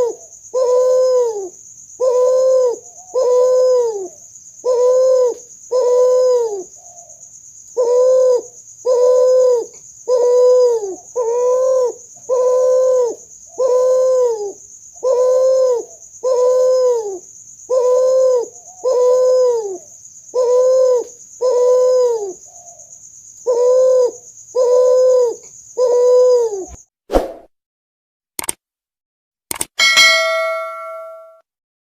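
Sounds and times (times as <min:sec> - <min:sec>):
dove cooing: 0:00.0 - 0:07.2, 0:07.8 - 0:22.8, 0:23.4 - 0:26.8.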